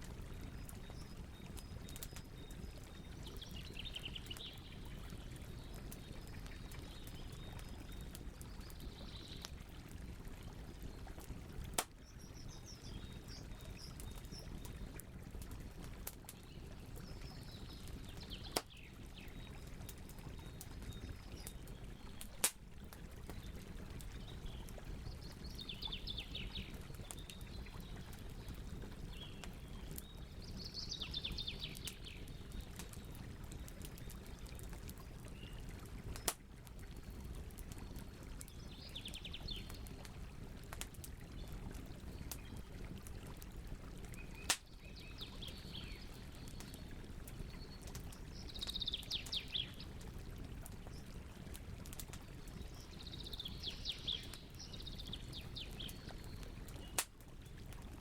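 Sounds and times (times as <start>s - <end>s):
campfire crackling: 0.0s - 58.0s
birds singing trills: 52.7s - 57.0s.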